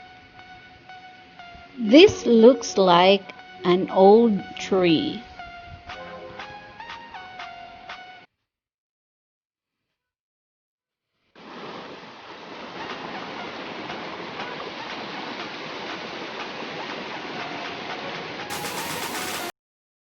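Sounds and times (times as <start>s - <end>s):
water rushing: 11.4s - 19.5s.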